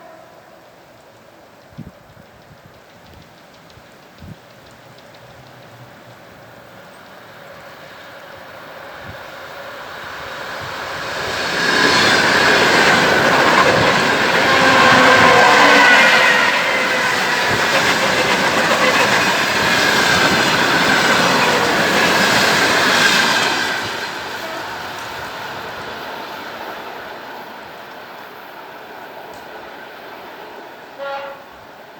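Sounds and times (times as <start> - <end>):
electric train passing: 2.2 - 31.9.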